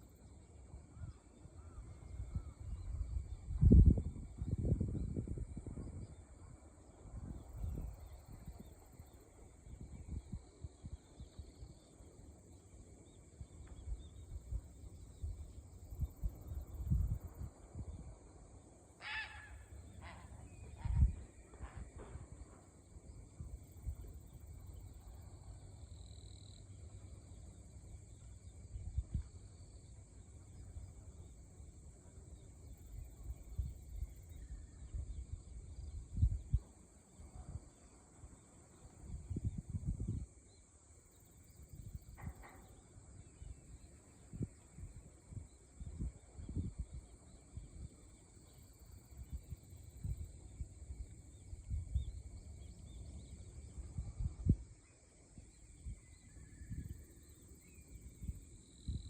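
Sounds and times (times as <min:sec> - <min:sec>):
short bird call: 0:19.0 - 0:21.0.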